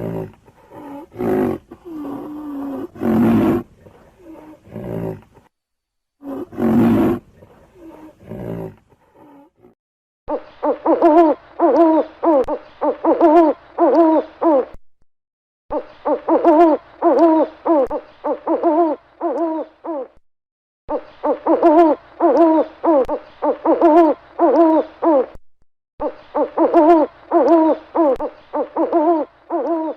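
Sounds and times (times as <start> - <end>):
animal hooting calls: 6.2 - 7.2.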